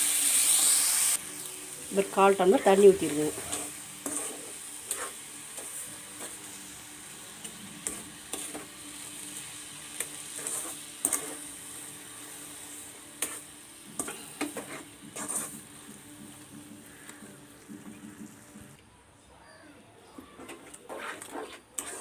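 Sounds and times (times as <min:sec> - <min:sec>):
steady sizzle: 0:00.0 - 0:18.9, 0:20.1 - 0:22.0
spoon scraping a pan: 0:03.0 - 0:06.5, 0:07.4 - 0:08.8, 0:09.9 - 0:11.9, 0:12.6 - 0:18.4, 0:20.4 - 0:22.0.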